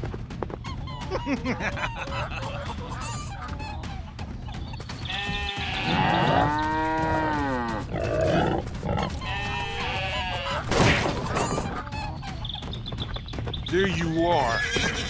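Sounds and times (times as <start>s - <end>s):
goats bleating: 5.1s - 10.7s.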